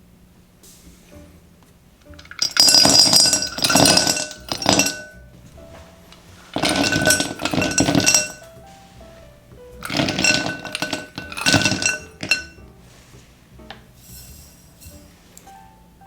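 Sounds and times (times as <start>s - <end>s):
frozen berries clattering into glass bowl: 2.2s - 5.2s, 6.4s - 8.6s, 9.8s - 12.6s.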